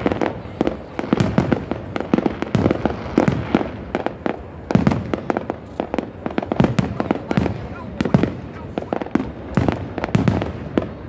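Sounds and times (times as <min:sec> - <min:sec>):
fireworks bangs and pops: 0:00.0 - 0:11.0.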